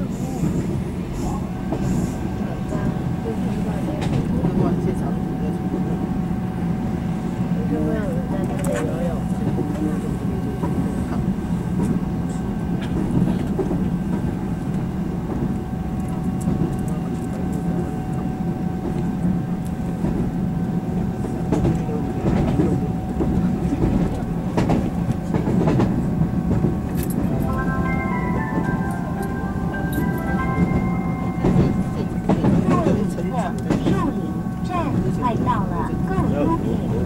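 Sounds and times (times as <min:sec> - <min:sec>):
train wheels rumbling on rail: 0:00.0 - 0:37.0
steady high tone: 0:27.1 - 0:36.9.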